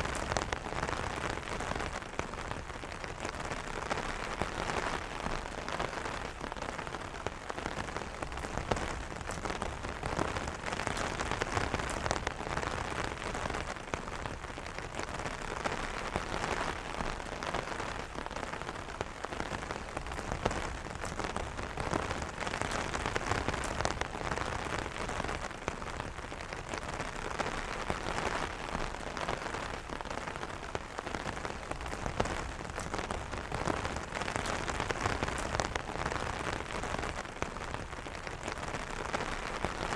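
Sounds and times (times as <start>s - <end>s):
rain pattering on an umbrella: 0.0s - 39.9s.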